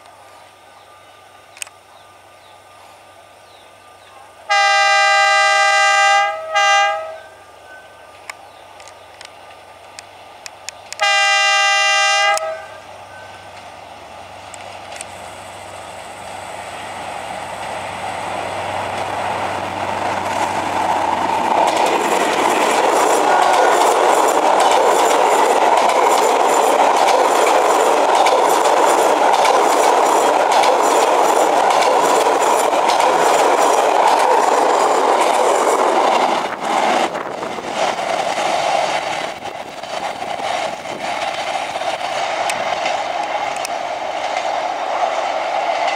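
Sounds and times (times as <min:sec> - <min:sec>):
locomotive engine hum: 0:00.0 - 0:45.9
locomotive horn blast: 0:04.5 - 0:07.4, 0:11.0 - 0:13.5
coaches clattering over rail joints: 0:17.6 - 0:45.9.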